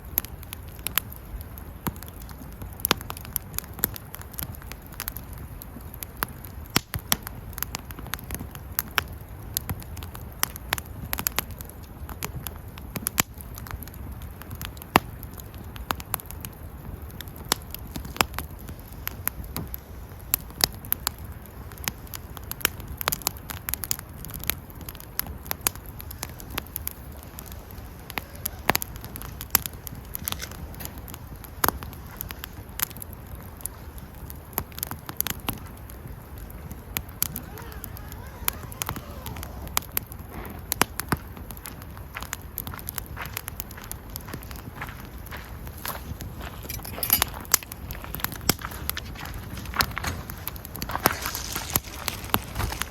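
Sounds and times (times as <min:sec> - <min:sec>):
campfire crackling and popping: 0:00.0 - 0:52.9
low rush of flame: 0:00.0 - 0:52.9.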